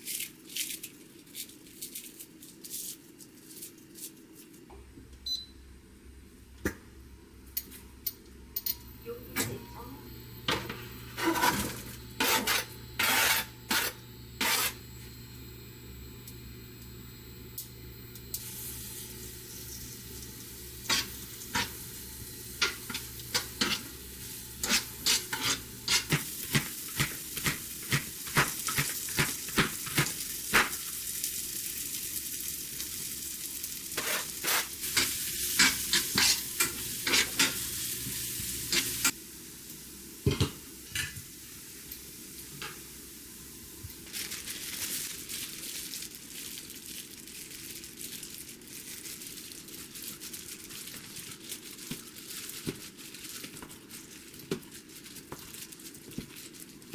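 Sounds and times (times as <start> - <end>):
food sizzling in frying pan: 10.1 - 55.7
utensil scraping and tapping pan: 24.6 - 28.9.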